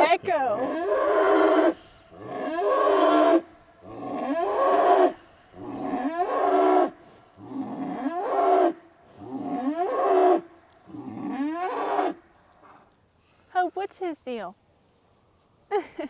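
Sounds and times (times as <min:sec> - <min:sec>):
cattle bellowing: 0:00.4 - 0:12.2.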